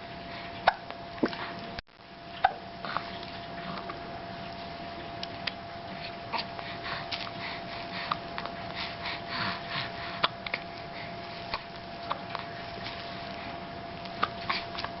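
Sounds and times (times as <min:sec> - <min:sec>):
faint steady hum: 0:00.0 - 0:15.0
snuffly breaths: 0:06.0 - 0:11.6.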